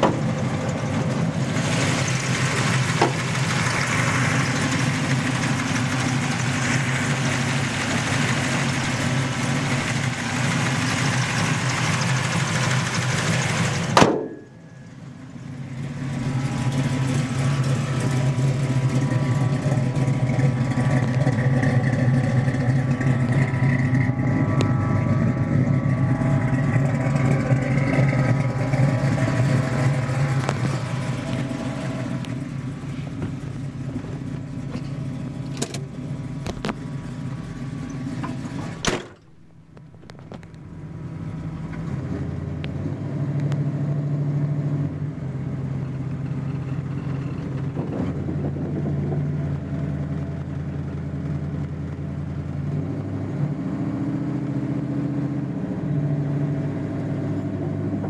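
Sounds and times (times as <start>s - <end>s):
car engine running: 0.0s - 58.0s
car door shutting: 38.7s - 39.3s.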